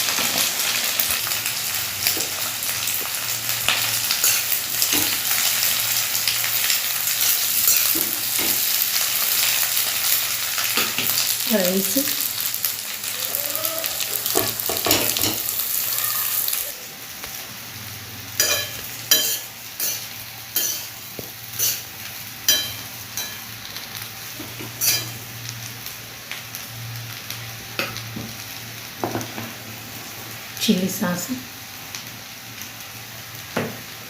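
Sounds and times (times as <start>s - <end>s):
rice sizzling in pan: 0.0s - 34.0s
spatula scraping and clinking pan: 18.4s - 20.9s, 24.8s - 25.2s.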